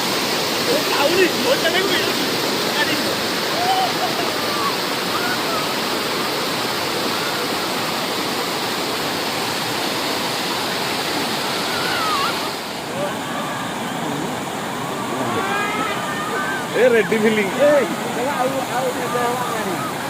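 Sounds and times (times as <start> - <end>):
waterfall roaring: 0.0 - 20.0
faint voices: 11.4 - 20.0.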